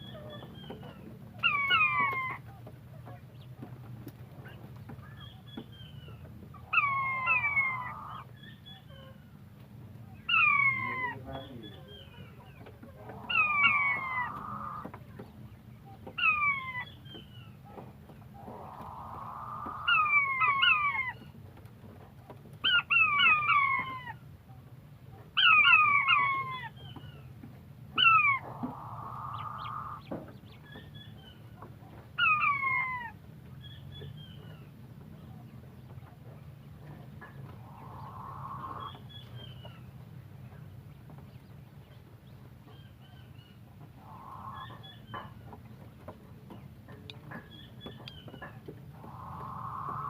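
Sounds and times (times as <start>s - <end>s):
quail calling: 0.0s - 3.2s, 4.4s - 9.2s, 10.1s - 15.0s, 16.0s - 21.3s, 22.6s - 24.3s, 25.3s - 27.2s, 27.9s - 34.7s, 37.2s - 39.9s, 42.7s - 45.5s, 47.3s - 50.0s
low steady hum: 0.0s - 50.0s.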